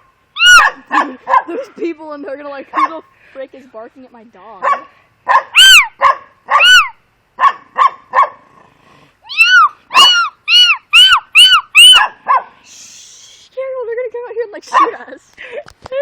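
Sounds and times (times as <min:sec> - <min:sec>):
high-pitched yipping barks: 0:00.0 - 0:01.7, 0:02.7 - 0:03.0, 0:04.6 - 0:08.4, 0:09.3 - 0:12.6, 0:14.7 - 0:15.1.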